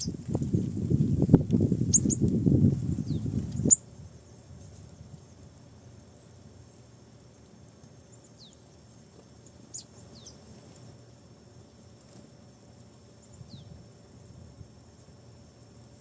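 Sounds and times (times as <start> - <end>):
small bird high calls: 0.0 - 0.3, 1.2 - 4.0, 8.1 - 10.6, 13.1 - 13.8
faint outdoor hum: 0.0 - 16.0.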